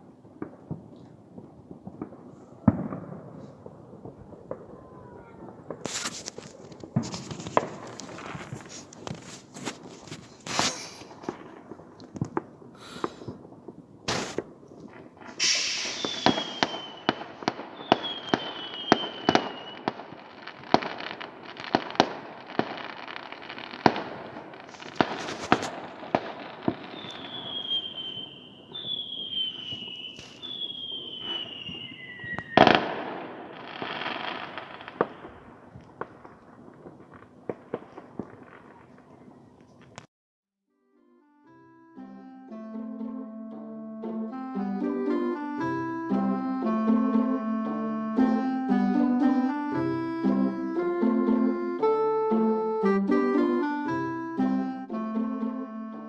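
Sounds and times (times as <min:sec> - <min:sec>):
fireworks bangs: 0:00.0 - 0:40.1
fireworks crackle: 0:00.0 - 0:40.1
falling whistles: 0:15.3 - 0:20.6, 0:24.1 - 0:35.3.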